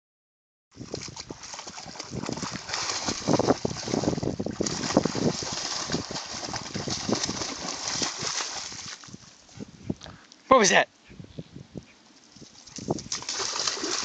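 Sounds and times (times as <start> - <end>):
water splashing as dog swims: 0.8 - 9.3, 12.7 - 14.0.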